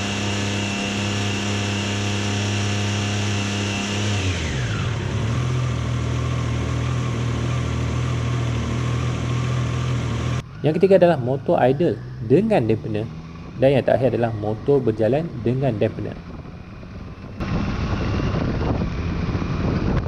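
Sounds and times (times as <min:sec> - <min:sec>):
motorcycle engine idling: 0:04.7 - 0:20.0.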